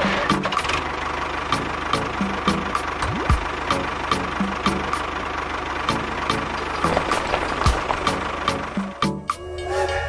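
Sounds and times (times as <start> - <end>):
tractor engine running: 0.0 - 10.0
background music with beat: 1.5 - 5.1, 5.9 - 10.0.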